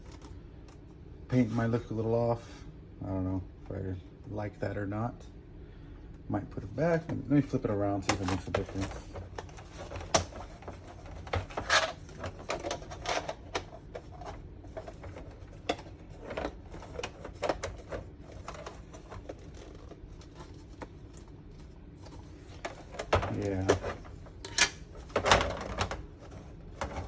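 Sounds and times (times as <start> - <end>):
plastic parts clicking and knocking: 8.0 - 21.3, 22.1 - 27.0.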